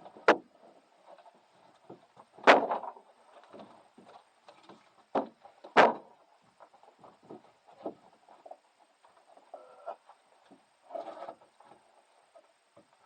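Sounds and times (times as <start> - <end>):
shuffling: 0.0 - 13.0
firewood knocking onto pile: 1.8 - 6.2, 7.0 - 8.1.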